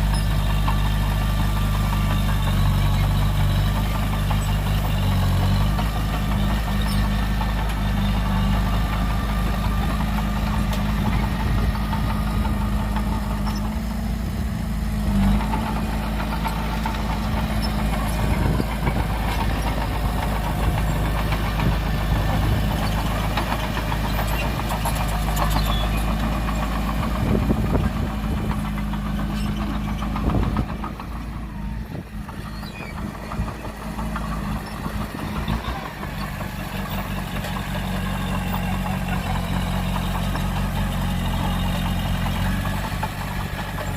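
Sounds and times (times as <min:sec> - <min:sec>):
engine knocks: 0:00.0 - 0:43.9
heavy diesel engine running: 0:00.0 - 0:43.9.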